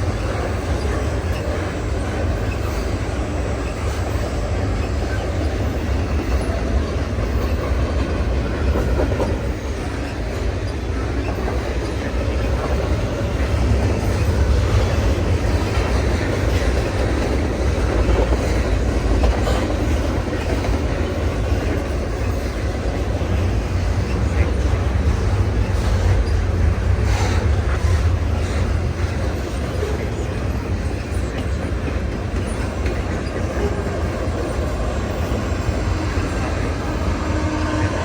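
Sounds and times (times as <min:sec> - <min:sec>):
freight train rolling past: 0:00.0 - 0:38.0
wheels clacking over rail joints: 0:00.0 - 0:38.0.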